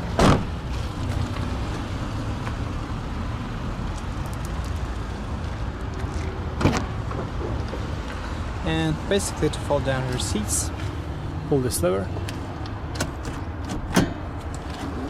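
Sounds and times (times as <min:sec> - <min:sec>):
car trunk fittings clunking: 0:12.3 - 0:14.9.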